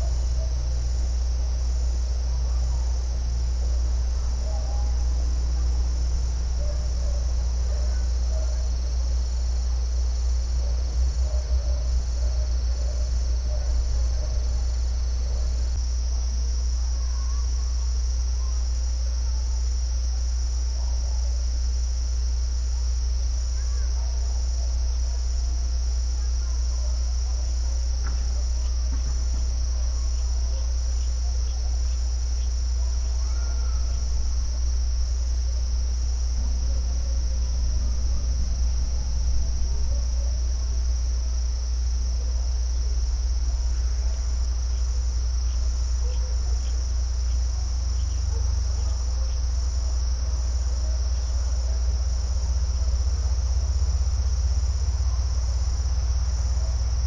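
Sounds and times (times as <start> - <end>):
insects trilling: 0.0 - 57.0
low rumble: 33.8 - 43.7.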